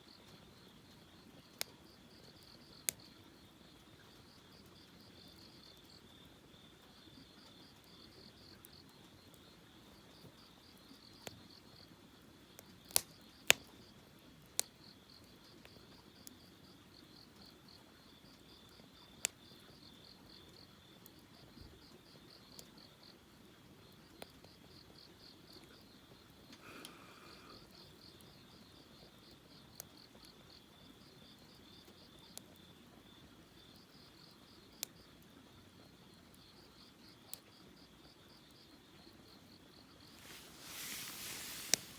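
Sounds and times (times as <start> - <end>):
campfire crackling and popping: 12.6 - 16.4, 23.6 - 32.6, 40.0 - 41.9
crickets chirping: 14.8 - 35.1, 35.8 - 41.9.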